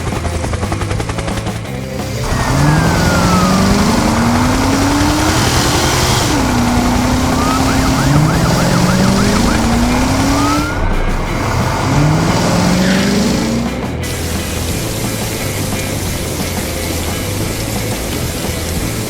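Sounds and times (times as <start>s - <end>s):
vehicle engine revving: 1.8s - 19.0s
siren yelping and wailing: 2.2s - 13.6s.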